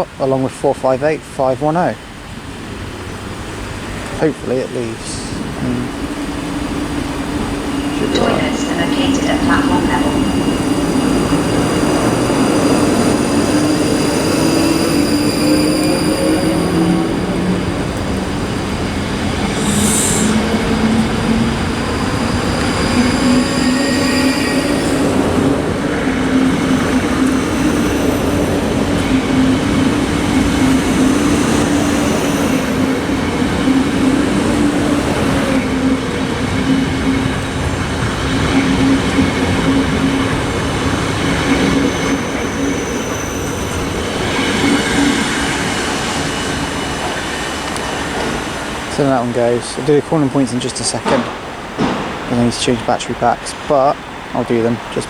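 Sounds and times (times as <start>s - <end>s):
electric train motors whining: 2.2s - 55.0s
train wheel squeal: 5.3s - 49.8s
short air hiss: 19.6s - 20.4s.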